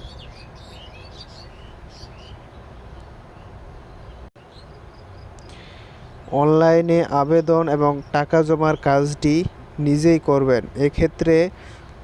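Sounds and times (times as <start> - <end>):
faint bird chirps: 0.0 - 6.4
low hum and hiss: 0.0 - 12.0.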